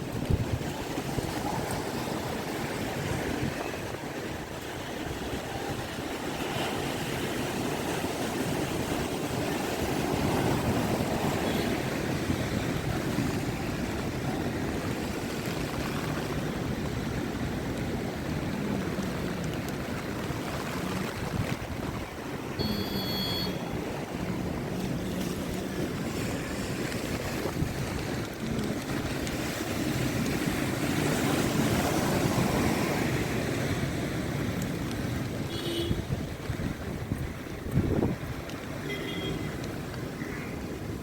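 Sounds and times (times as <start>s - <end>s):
surf breaking and washing: 0.0s - 41.0s
wind: 0.0s - 41.0s.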